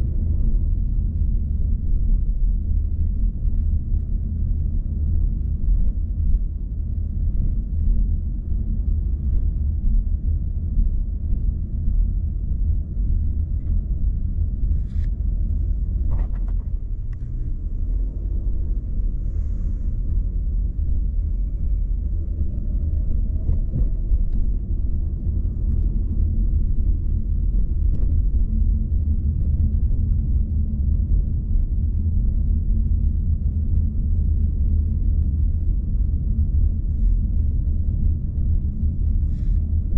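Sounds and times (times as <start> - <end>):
car engine and road noise: 11.9 - 28.4.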